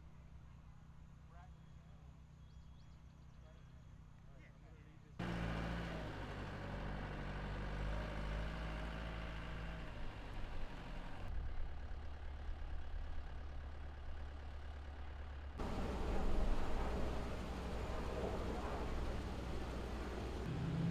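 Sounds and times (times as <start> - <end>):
outdoor background noise: 0.0 - 20.9
heavy engine idling: 5.2 - 8.1, 9.2 - 20.5.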